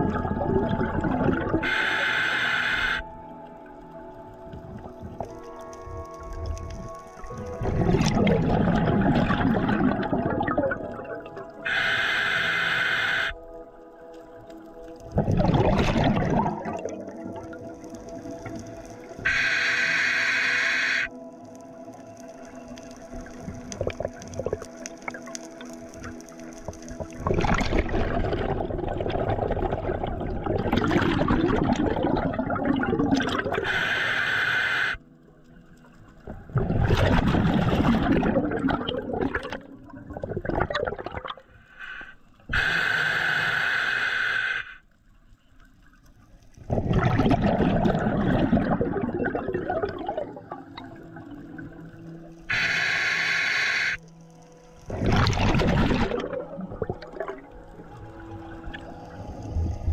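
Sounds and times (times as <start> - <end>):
exhaled bubbles rushing: 0.0 - 1.9, 6.3 - 11.8, 15.0 - 19.5, 23.4 - 25.4, 26.8 - 34.1, 36.2 - 41.5, 46.6 - 53.0, 54.8 - 59.9
regulator inhalation hiss: 1.6 - 3.1, 11.6 - 13.4, 19.2 - 21.1, 33.6 - 35.0, 41.7 - 44.9, 52.5 - 54.0.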